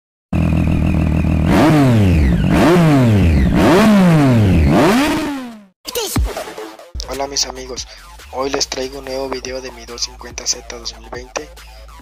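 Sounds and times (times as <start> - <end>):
motorcycle engine revving: 0.4 - 5.8.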